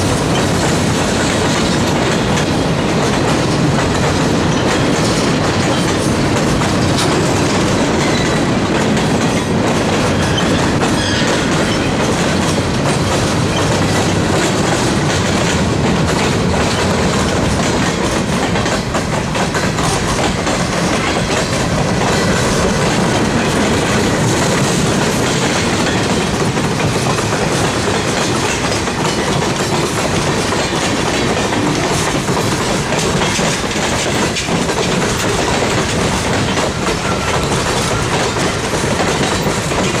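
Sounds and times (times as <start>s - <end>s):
freight train rolling past: 0.0s - 40.0s
wheels clicking over rail joints: 0.0s - 40.0s.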